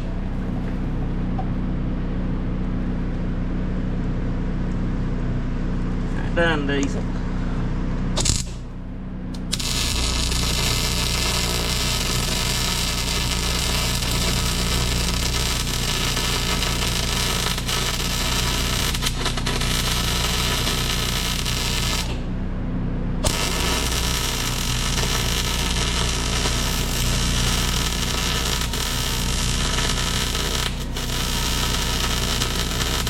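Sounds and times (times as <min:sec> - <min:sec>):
low hum: 0:00.0 - 0:33.0
welding arc hissing and crackling: 0:08.2 - 0:08.6, 0:09.4 - 0:22.2, 0:23.2 - 0:33.0.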